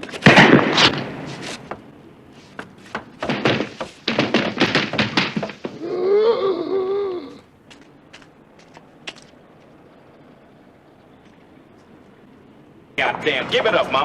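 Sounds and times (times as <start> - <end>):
sharp knocks and thuds: 0.0 - 6.0
wavering pitched cry: 5.7 - 7.6.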